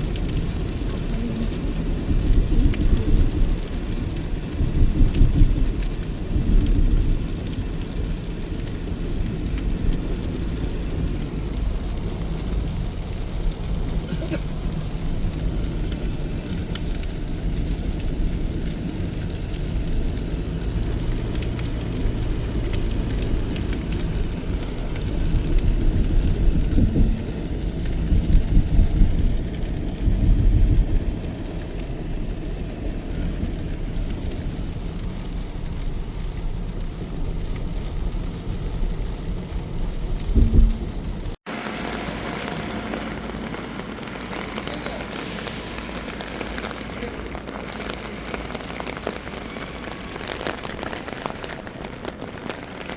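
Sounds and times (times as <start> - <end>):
heavy low rumbling: 0.0 - 52.2
steady rain: 0.0 - 52.9.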